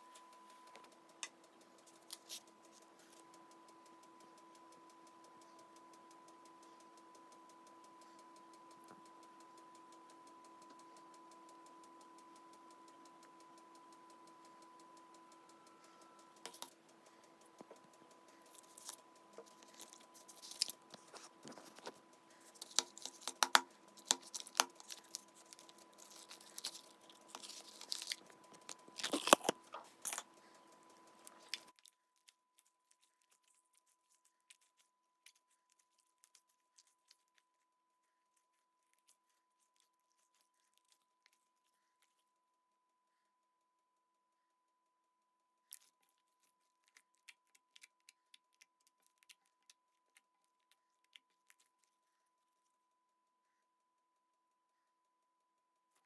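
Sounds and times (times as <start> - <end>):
slime crackling and popping: 18.4 - 31.8.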